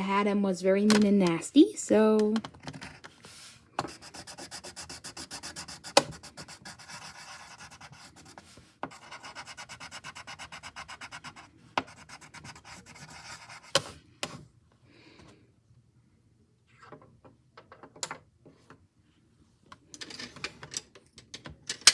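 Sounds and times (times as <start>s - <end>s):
drawing tool scratching on paper: 2.9s - 13.9s.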